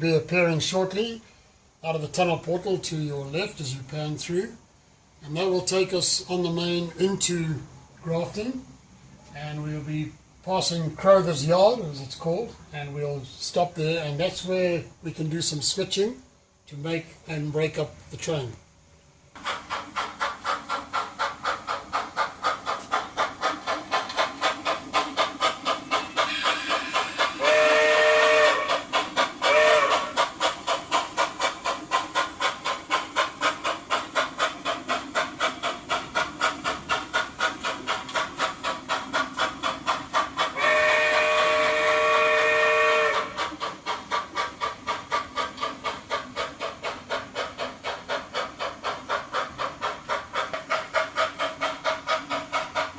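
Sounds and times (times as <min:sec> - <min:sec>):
model steam locomotive chuffing: 0:00.0 - 0:08.7, 0:09.3 - 0:52.9
train whistle blasts: 0:26.2 - 0:28.8, 0:29.4 - 0:30.2, 0:40.6 - 0:43.4.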